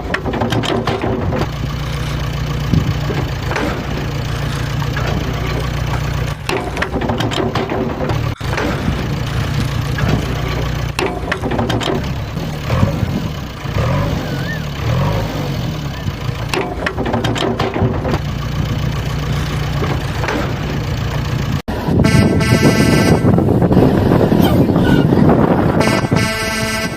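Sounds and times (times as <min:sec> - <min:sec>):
engine idling: 0:00.0 - 0:26.9
loud horn-like tone: 0:21.9 - 0:23.6, 0:25.7 - 0:26.9.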